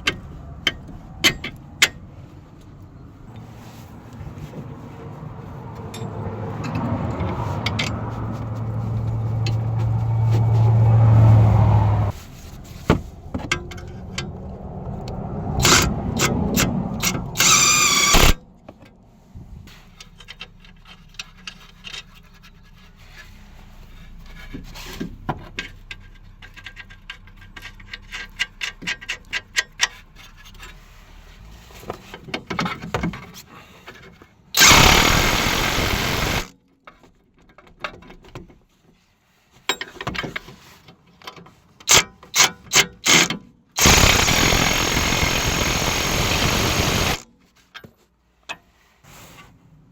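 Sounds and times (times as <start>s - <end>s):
power wrench running: 15.6s - 15.9s, 17.0s - 18.4s, 34.6s - 36.5s, 43.0s - 47.2s.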